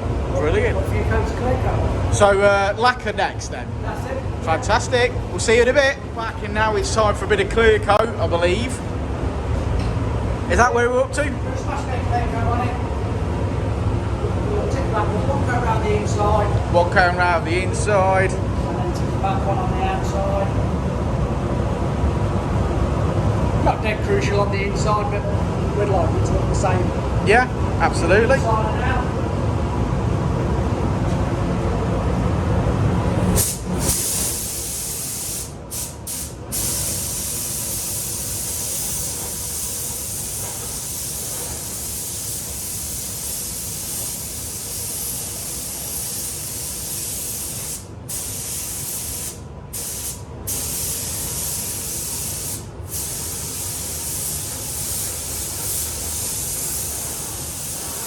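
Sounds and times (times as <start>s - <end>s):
paint spray gun hissing: 33.4s - 58.0s.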